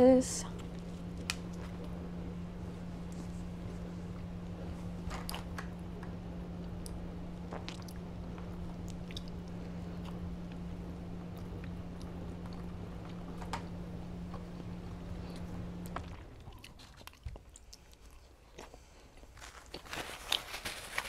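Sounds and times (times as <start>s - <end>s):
steady low hum: 0.0s - 21.0s
wet clicks and crunches: 0.6s - 2.0s, 6.6s - 10.1s
chewing and mouth sounds: 6.6s - 13.2s, 14.3s - 20.5s.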